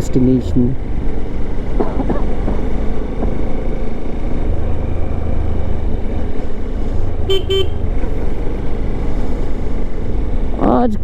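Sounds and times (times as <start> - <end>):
wind rumble: 0.0 - 10.6
motorcycle engine: 0.0 - 11.0
vehicle horn toots: 7.2 - 7.9.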